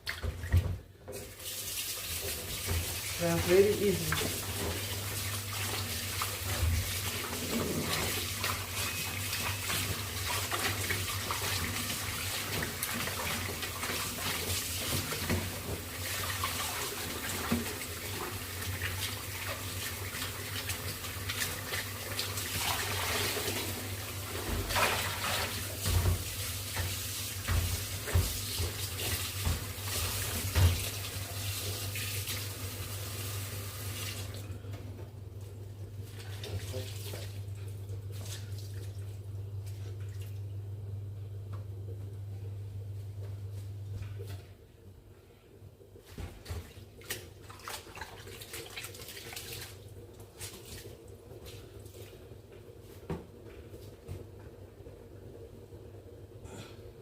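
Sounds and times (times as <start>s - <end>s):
tap water running into sink: 0.0s - 34.4s
knocks and splashes: 24.4s - 31.1s.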